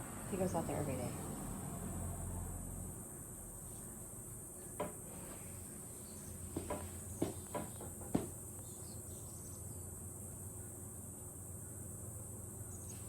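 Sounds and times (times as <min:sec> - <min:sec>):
faint short knocks: 0:04.8 - 0:05.4, 0:06.5 - 0:08.4.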